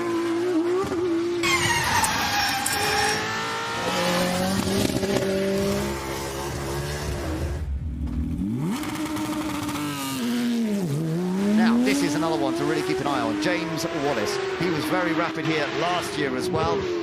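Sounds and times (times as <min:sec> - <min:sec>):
race car engine changing gear: 0:00.8 - 0:09.9.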